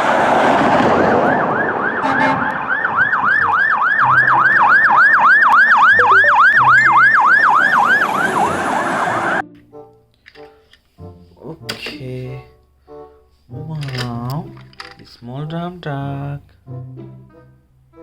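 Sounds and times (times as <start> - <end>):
fire engine siren yelping: 0.0 - 9.4
rushing noise: 0.0 - 9.4.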